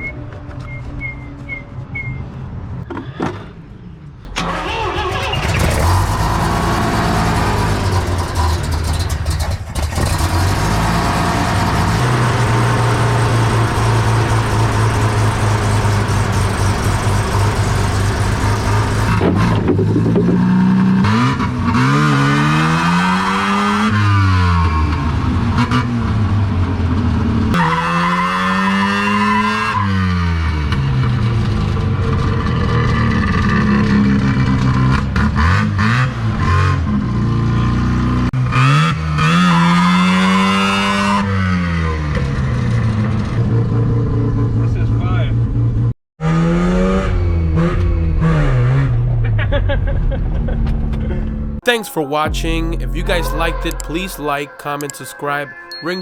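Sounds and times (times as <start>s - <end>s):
rotary engine starting and revving: 4.3s - 23.9s.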